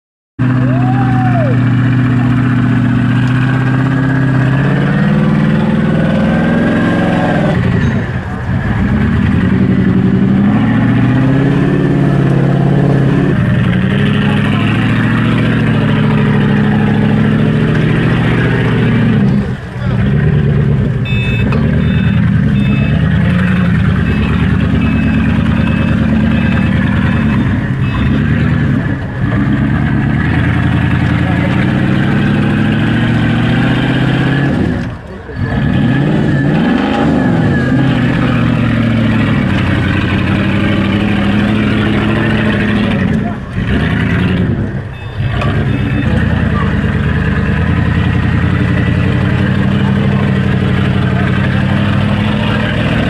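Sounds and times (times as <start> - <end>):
car engine revving: 0.4 - 53.0
short electronic beeps: 21.0 - 28.7, 44.2 - 46.7.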